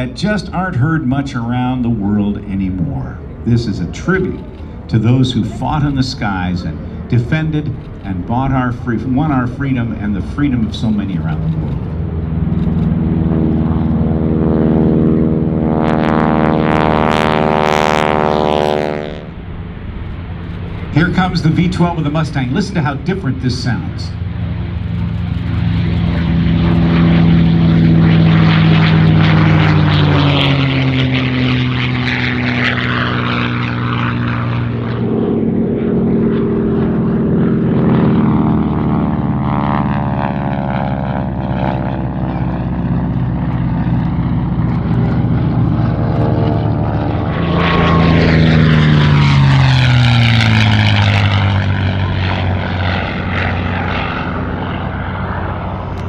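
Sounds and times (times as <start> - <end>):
propeller plane flying past: 0.0 - 56.0.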